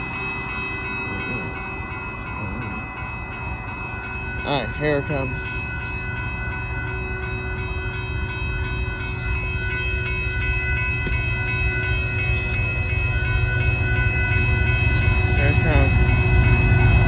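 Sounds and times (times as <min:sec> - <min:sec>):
crossing bell ringing: 0:00.0 - 0:17.0
diesel locomotives rumbling: 0:00.0 - 0:17.0.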